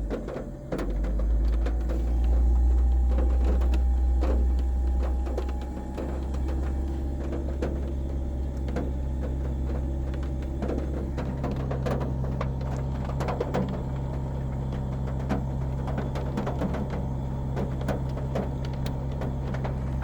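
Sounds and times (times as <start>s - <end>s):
car engine idling: 1.0s - 20.0s.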